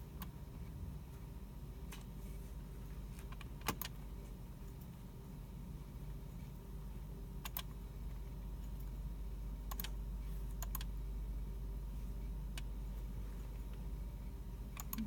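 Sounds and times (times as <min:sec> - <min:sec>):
steady low hum: 0:00.0 - 0:15.0
keyboard and mouse clicks: 0:03.2 - 0:04.0, 0:07.4 - 0:07.7, 0:09.7 - 0:10.9, 0:14.8 - 0:15.0.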